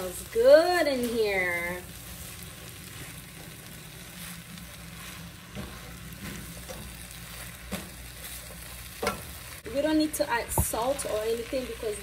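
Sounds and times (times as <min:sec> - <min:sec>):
rice sizzling in a skillet: 0:00.0 - 0:12.0
utensil tapping and scraping pan: 0:07.6 - 0:09.3.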